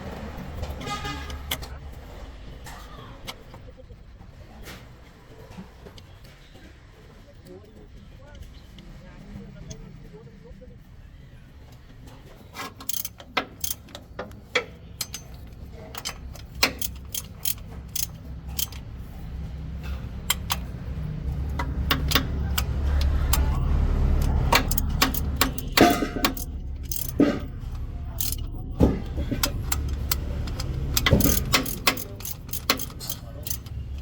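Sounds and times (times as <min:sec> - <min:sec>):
metal tools clinking: 0:12.6 - 0:23.6, 0:24.2 - 0:34.0
low rumble: 0:18.8 - 0:31.5.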